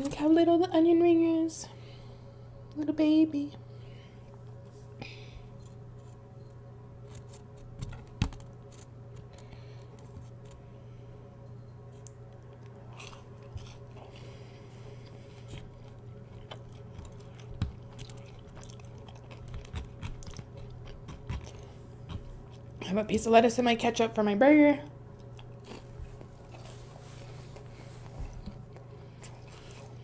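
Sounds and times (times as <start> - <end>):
steady low hum: 0.0 - 30.0
chewing crunchy food: 12.0 - 22.8, 25.1 - 30.0.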